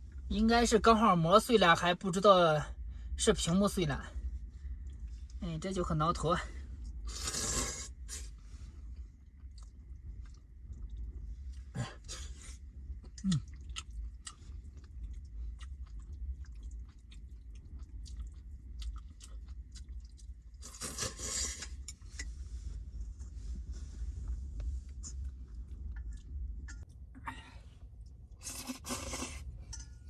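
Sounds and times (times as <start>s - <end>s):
person chewing food: 6.8s - 27.0s.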